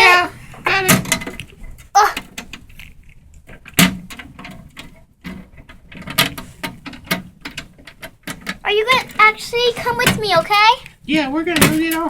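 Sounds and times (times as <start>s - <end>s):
plastic toys clicking and knocking: 0.0s - 12.0s.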